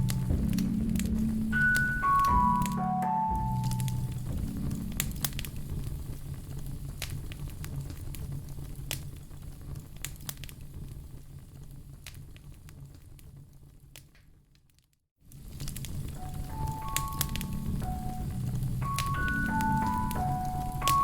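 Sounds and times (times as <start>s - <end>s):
low rumble: 0.0s - 8.7s, 15.4s - 21.0s
wood fire crackling and popping: 0.0s - 21.0s.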